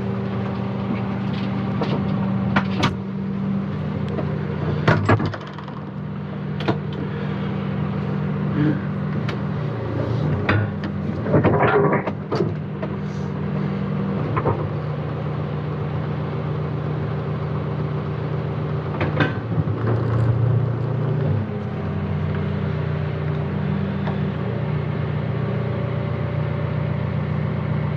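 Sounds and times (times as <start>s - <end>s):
diesel engine running: 0.0s - 27.9s
sharp knocks and clanks: 4.2s - 6.0s.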